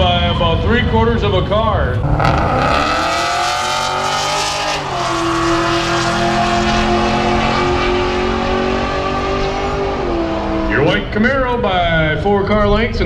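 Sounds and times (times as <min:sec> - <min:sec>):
lower engine note: 0:00.0 - 0:12.6
race car engine running: 0:01.9 - 0:11.3.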